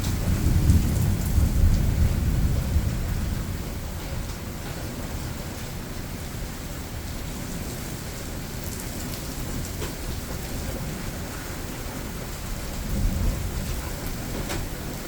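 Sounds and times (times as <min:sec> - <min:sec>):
low rumble of thunder: 0:00.0 - 0:05.2, 0:09.5 - 0:15.0
steady rain falling: 0:00.0 - 0:15.0.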